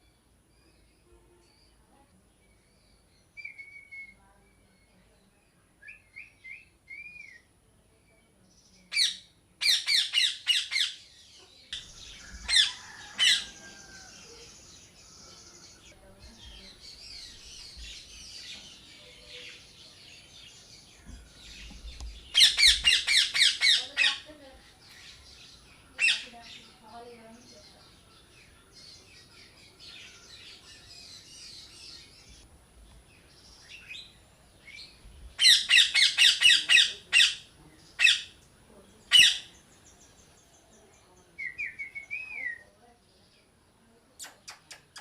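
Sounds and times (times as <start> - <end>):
small birds chirping: 0.0 - 45.0
parrots squawking: 8.9 - 11.0, 11.8 - 14.0, 22.3 - 24.3, 26.0 - 26.3, 35.4 - 38.4, 39.1 - 39.5.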